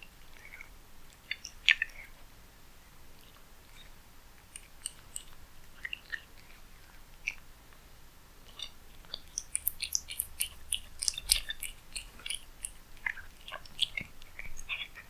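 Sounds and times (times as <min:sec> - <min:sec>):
cat chewing clicks: 0:09.1 - 0:14.7.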